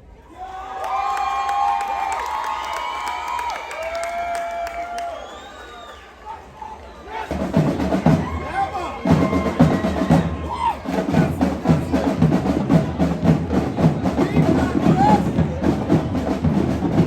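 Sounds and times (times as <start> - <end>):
voices: 6.2 - 17.0
drum group playing fast rhythm: 7.3 - 17.0.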